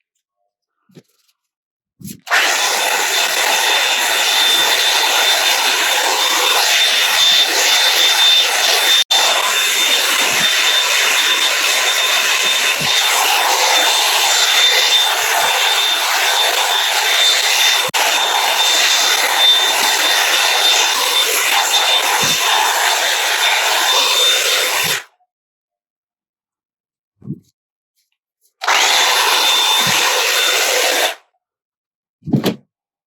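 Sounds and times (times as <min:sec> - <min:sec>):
hair dryer brush blowing air: 0:02.3 - 0:25.0, 0:28.6 - 0:31.2.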